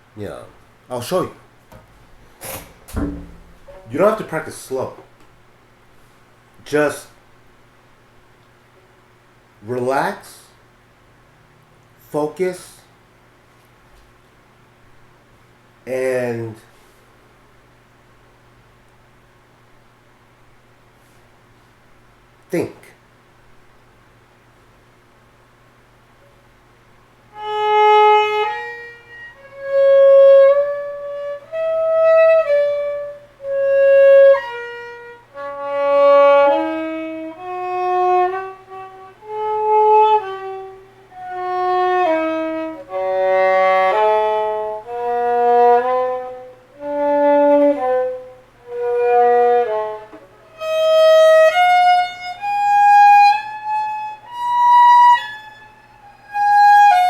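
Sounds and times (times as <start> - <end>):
solo violin playing scales: 27.3 - 57.0.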